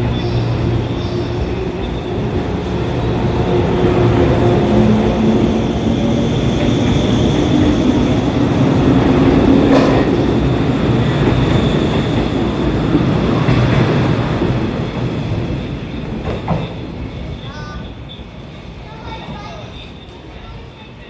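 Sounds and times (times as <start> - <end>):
train rumbling past on rails: 0.0 - 21.0.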